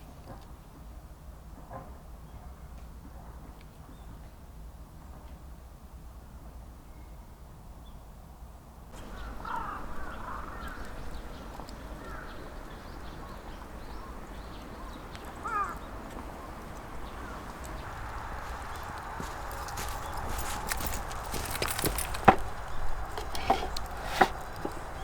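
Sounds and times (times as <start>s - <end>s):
low steady background noise: 0.0s - 25.0s
birds calling: 9.0s - 25.0s.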